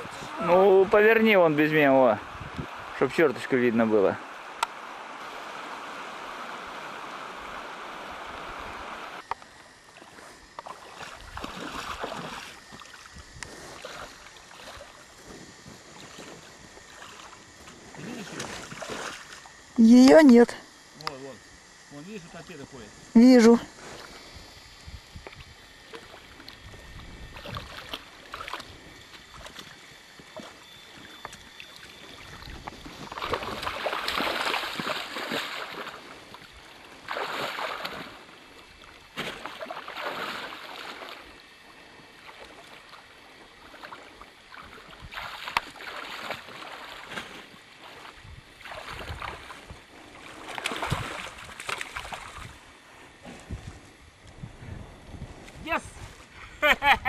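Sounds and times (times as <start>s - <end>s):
moving water: 0.0s - 54.2s
water splashing: 9.8s - 15.1s, 15.9s - 19.7s, 25.3s - 41.4s, 42.2s - 52.6s.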